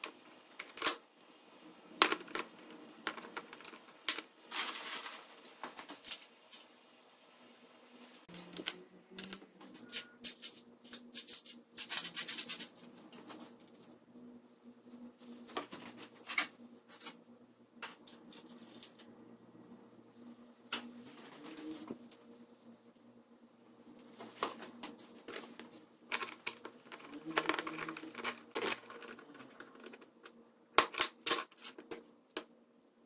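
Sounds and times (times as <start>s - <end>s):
small parts clicking and rattling: 0.0s - 1.0s, 2.0s - 6.7s, 24.9s - 32.5s
faint steady hum: 0.0s - 33.0s.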